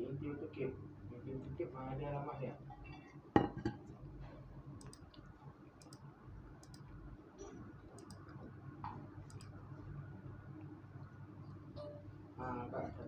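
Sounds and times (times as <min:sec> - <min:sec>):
low room hum: 0:00.0 - 0:13.0
faint sharp clicks: 0:09.3 - 0:09.6.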